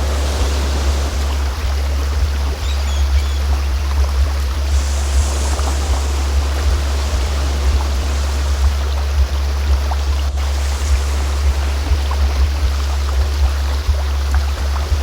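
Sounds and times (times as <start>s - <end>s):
steady low-pitched tone: 0.0s - 15.0s
stream flowing with splashes: 0.0s - 15.0s.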